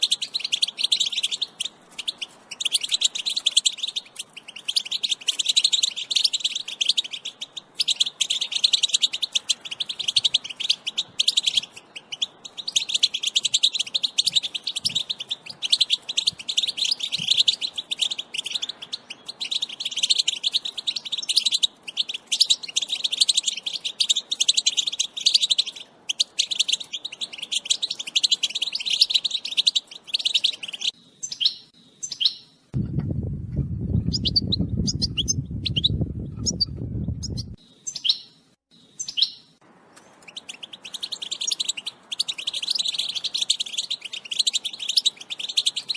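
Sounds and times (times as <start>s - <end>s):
bird twittering and trilling: 0.0s - 32.9s, 33.8s - 45.9s.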